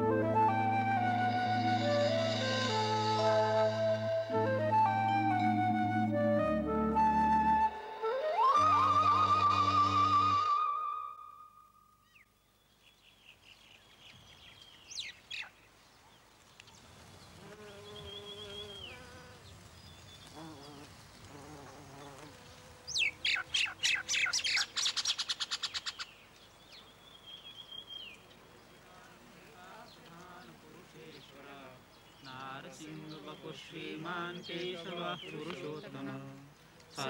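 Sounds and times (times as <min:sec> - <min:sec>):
birds singing: 0:17.2 - 0:20.9, 0:22.0 - 0:29.1, 0:29.8 - 0:37.0
lower bird calls: 0:17.6 - 0:20.9, 0:22.9 - 0:29.0
fast bird trill: 0:22.9 - 0:26.2.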